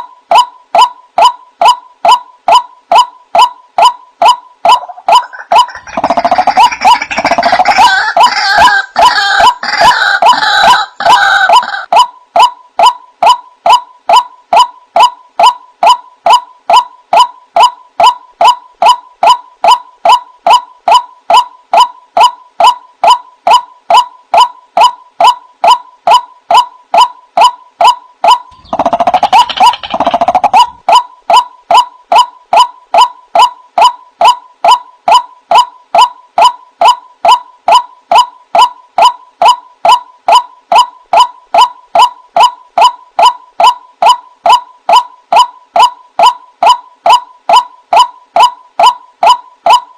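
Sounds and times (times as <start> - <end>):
waterhen calling: 1.6 - 11.9.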